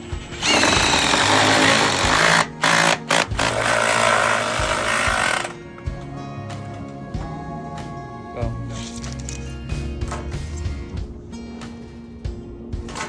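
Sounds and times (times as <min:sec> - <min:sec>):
background music: 0:00.0 - 0:13.0
loud power tool running: 0:00.4 - 0:05.6.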